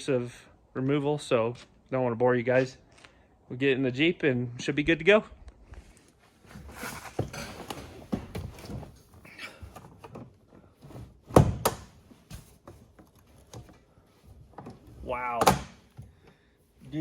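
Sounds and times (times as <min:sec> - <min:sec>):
rustling and shifting in seat: 0:05.5 - 0:15.0.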